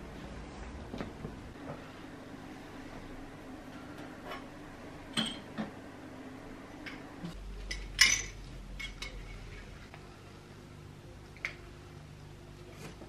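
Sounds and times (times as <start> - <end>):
low steady hum: 0.0 - 13.0
ceramic cups clinking: 5.2 - 5.6, 7.6 - 9.7.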